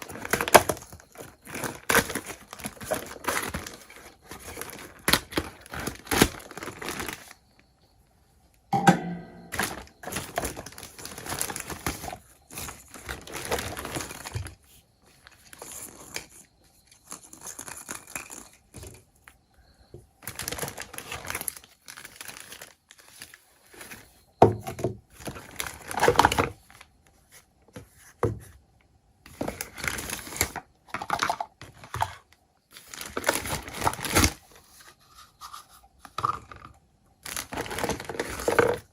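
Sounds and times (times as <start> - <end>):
packaging crinkling and tearing: 0.0 - 7.4, 9.5 - 14.6, 15.2 - 18.6, 20.2 - 24.1, 25.2 - 26.8, 29.4 - 32.0, 32.7 - 34.8, 37.2 - 38.9.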